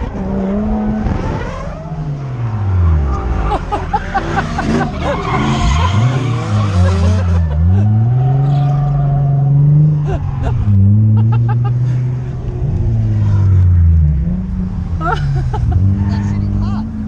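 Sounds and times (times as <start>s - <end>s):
car engine revving: 0.0s - 17.0s
tyres squealing: 3.8s - 9.1s.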